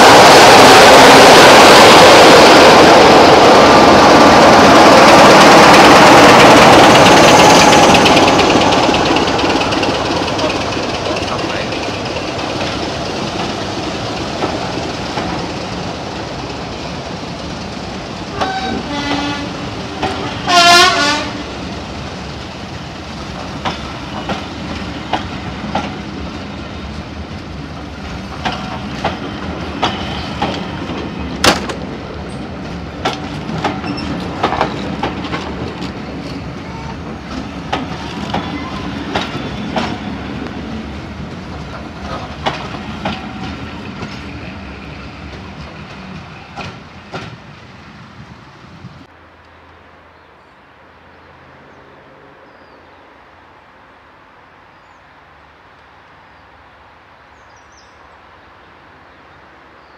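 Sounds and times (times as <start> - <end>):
wheels clicking over rail joints: 5.0 - 16.7, 23.2 - 26.3, 26.9 - 44.6.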